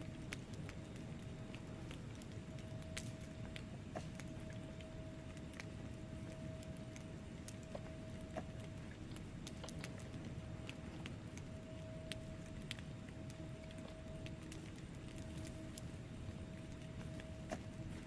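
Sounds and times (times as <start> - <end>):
low rumble of burning logs: 0.0 - 18.0
wood fire crackling: 0.0 - 18.0
faint steady whistle: 2.4 - 8.9, 10.8 - 18.0.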